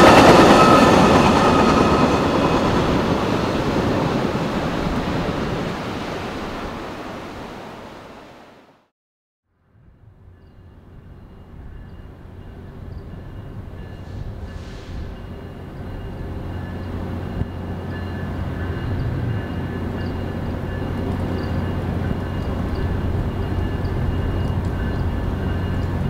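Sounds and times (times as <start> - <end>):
train rumble: 0.0 - 7.2, 9.8 - 26.0.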